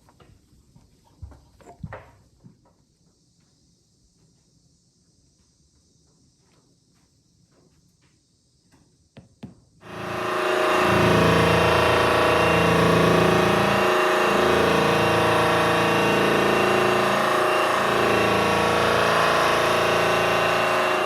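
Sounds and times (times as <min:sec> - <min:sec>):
electric polisher running: 0:09.8 - 0:21.0.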